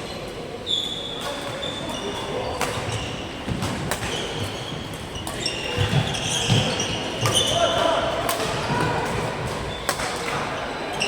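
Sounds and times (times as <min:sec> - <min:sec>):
shoes squeaking on floor: 0:00.6 - 0:07.8.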